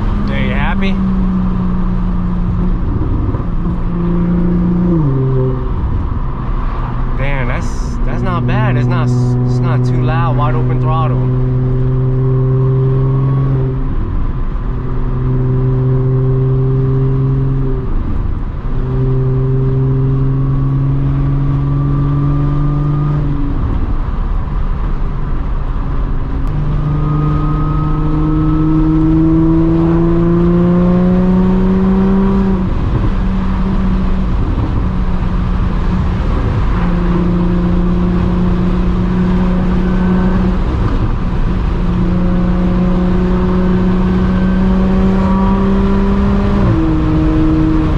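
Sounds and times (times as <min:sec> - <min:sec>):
car exhaust drone while driving: 0:00.0 - 0:47.9.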